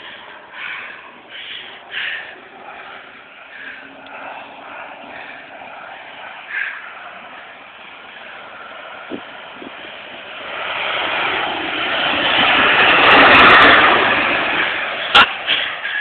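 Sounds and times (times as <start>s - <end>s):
airplane engine fly-by: 0.0s - 16.0s.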